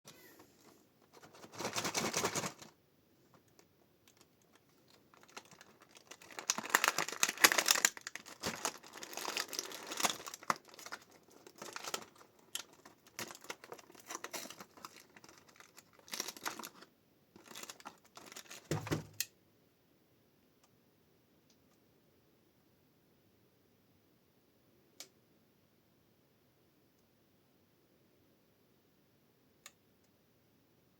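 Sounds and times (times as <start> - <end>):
plastic wrapping crinkling and tearing: 0.6 - 2.7, 3.6 - 19.1.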